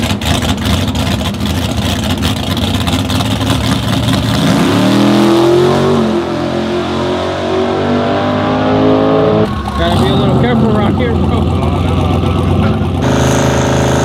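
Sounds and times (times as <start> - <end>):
truck engine revving hard: 3.9 - 14.0.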